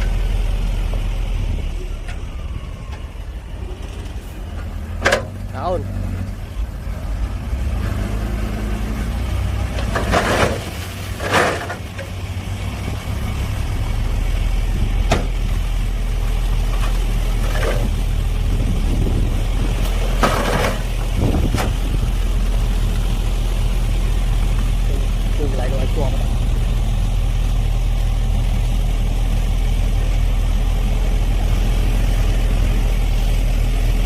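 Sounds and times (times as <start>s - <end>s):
diesel machinery running: 0.0s - 34.0s
harsh scraping or cracking: 9.7s - 12.2s, 16.6s - 18.2s, 19.4s - 22.0s.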